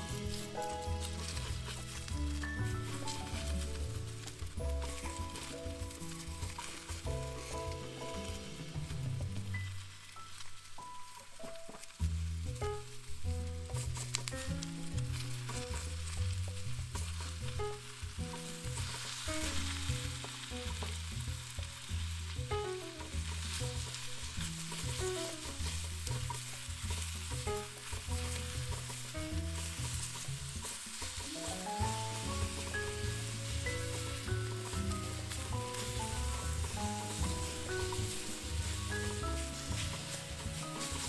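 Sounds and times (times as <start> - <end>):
wooden spoon scraping pan: 0.0 - 10.0, 23.0 - 41.0
background music with bass: 0.0 - 10.1, 11.8 - 41.0
vegetables sizzling in skillet: 0.0 - 41.0.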